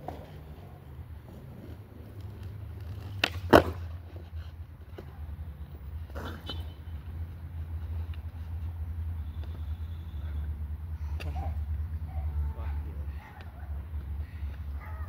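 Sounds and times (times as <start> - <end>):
skateboard knock and scrape: 0.0 - 0.6, 1.3 - 5.1
skateboard clacking: 0.0 - 4.3.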